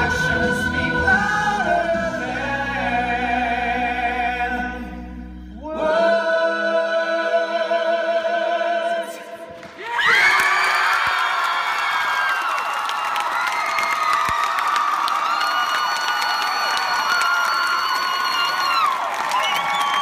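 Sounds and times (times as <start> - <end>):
group singing held chords: 0.0 - 9.6
audience cheering and whooping: 9.8 - 20.0.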